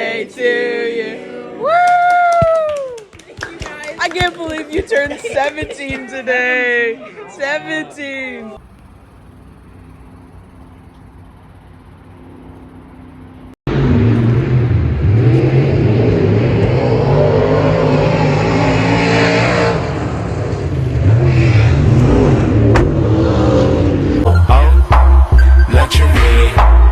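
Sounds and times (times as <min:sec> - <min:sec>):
car engine revving: 0:08.6 - 0:26.9.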